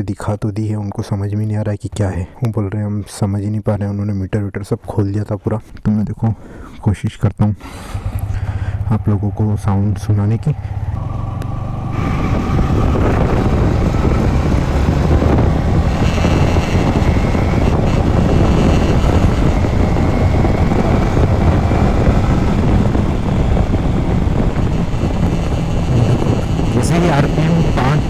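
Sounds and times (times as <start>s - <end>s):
wind on microphone: 7.6s - 28.0s
motorcycle engine running: 7.9s - 28.0s.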